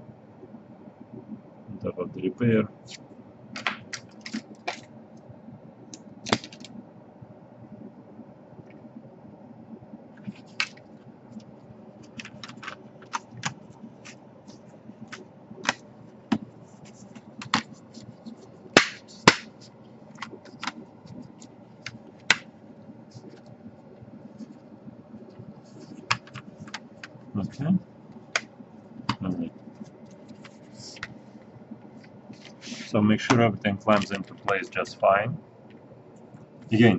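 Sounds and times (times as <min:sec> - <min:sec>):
plastic laptop parts clicking: 0:03.6 - 0:04.9, 0:05.9 - 0:06.7, 0:12.0 - 0:14.2, 0:17.2 - 0:17.7, 0:20.2 - 0:20.8, 0:26.0 - 0:27.1.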